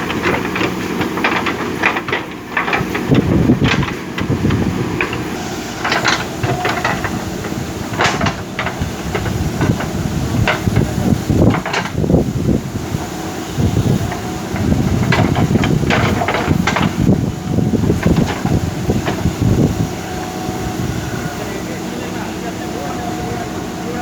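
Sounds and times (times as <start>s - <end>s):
digging bucket clanking: 0.0s - 12.1s, 13.9s - 19.7s
diesel engine running under load: 0.0s - 24.0s.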